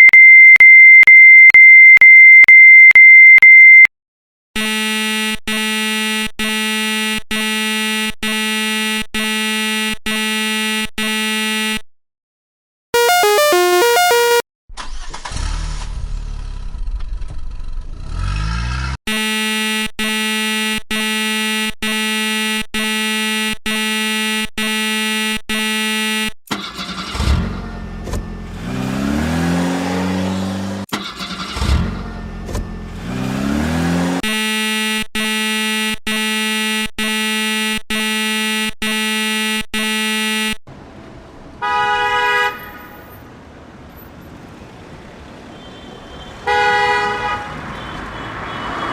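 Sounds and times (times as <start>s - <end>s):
vehicle horn honking: 4.6s - 11.8s, 13.0s - 14.4s, 19.1s - 26.3s, 33.6s - 40.5s, 41.6s - 43.1s, 45.5s - 48.9s
engine revving: 17.5s - 19.2s, 26.5s - 36.8s.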